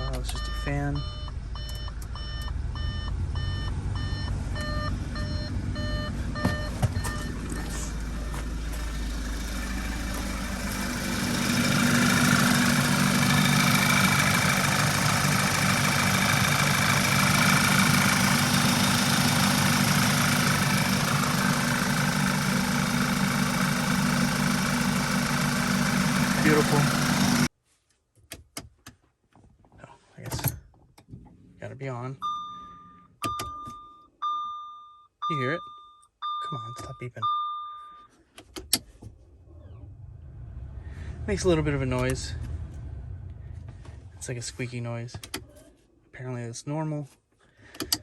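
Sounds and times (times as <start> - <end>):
dashboard warning chime beeping: 0.0 - 10.4, 32.2 - 38.2
car blower fan rushing air: 6.6 - 27.4.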